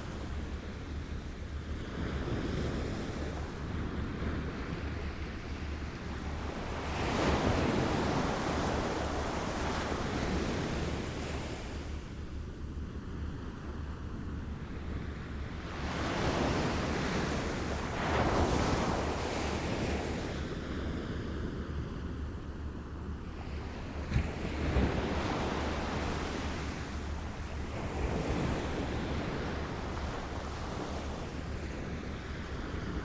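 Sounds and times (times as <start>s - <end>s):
wind rumble on microphone: 0.0s - 33.0s
small waves lapping ashore: 14.9s - 21.9s, 23.3s - 33.0s.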